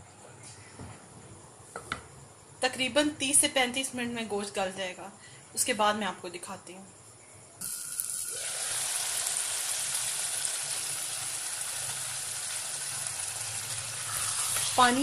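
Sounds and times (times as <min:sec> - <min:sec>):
curry sizzling in a pot: 0:07.6 - 0:15.0.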